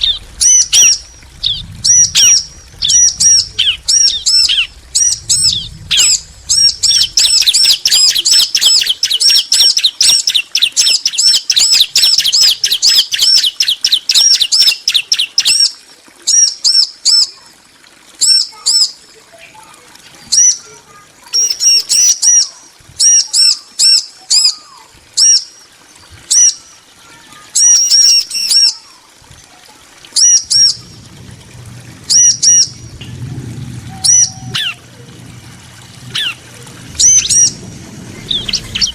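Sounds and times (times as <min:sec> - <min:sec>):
birds calling high sharp notes: 0:33.8 - 0:35.0.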